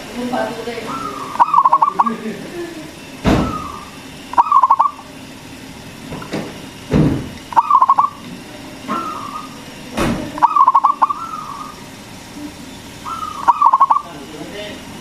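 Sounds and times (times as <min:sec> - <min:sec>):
dove cooing: 0:00.6 - 0:05.2, 0:07.5 - 0:09.8, 0:10.4 - 0:14.2.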